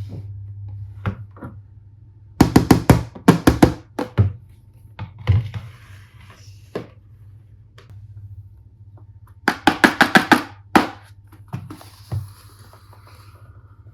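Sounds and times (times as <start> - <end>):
plastic toy parts knocking: 9.5 - 11.1.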